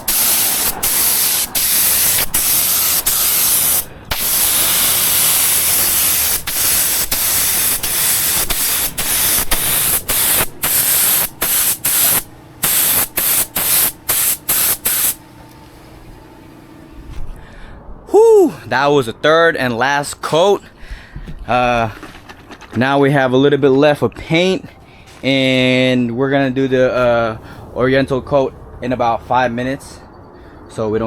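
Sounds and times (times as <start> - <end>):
paint spray gun hissing: 0.0 - 15.5.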